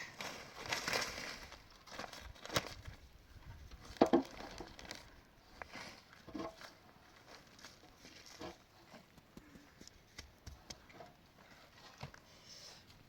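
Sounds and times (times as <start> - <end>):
knocks and handling noises: 3.9 - 4.9.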